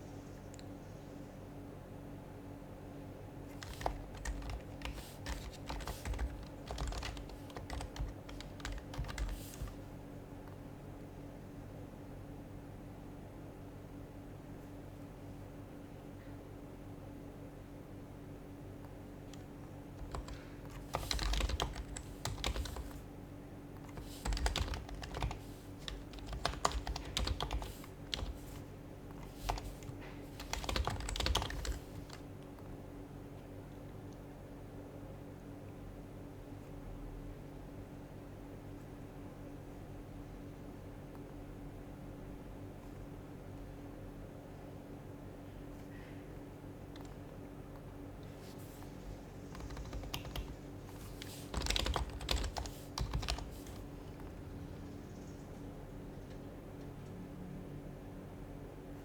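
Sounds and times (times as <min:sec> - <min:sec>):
soft keyboard typing: 0:03.4 - 0:10.7, 0:18.8 - 0:23.1, 0:23.8 - 0:32.8, 0:46.8 - 0:54.5.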